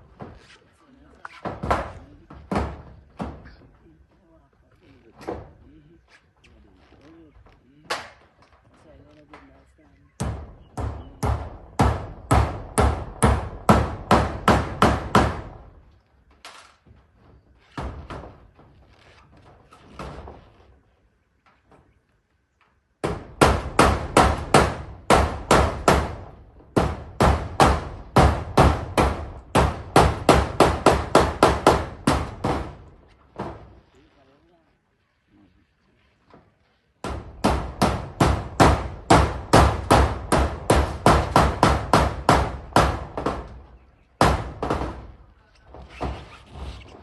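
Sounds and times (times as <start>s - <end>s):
hammer driving nails: 10.2s - 15.8s, 23.0s - 33.7s, 37.0s - 46.6s.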